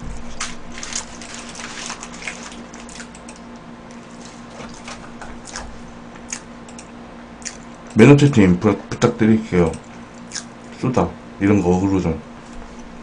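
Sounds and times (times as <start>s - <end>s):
person chewing burger: 0.2s - 6.5s, 7.4s - 7.8s, 10.2s - 10.6s
paper wrapper rustling: 0.3s - 2.9s.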